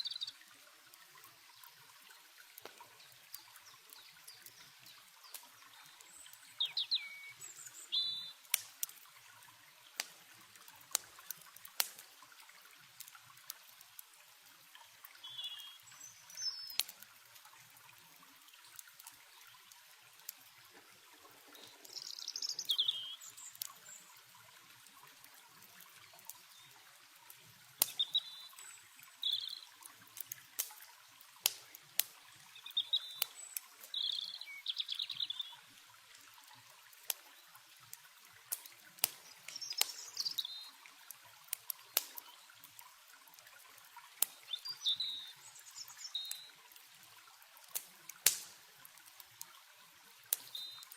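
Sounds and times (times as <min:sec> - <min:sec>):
songbirds chirping: 0:00.0 - 0:10.0, 0:14.7 - 0:27.0, 0:27.8 - 0:30.0, 0:32.2 - 0:35.8, 0:38.6 - 0:41.1, 0:44.2 - 0:46.7, 0:50.4 - 0:50.9
campfire crackling and popping: 0:00.0 - 0:50.9
stream water trickling: 0:00.0 - 0:50.9.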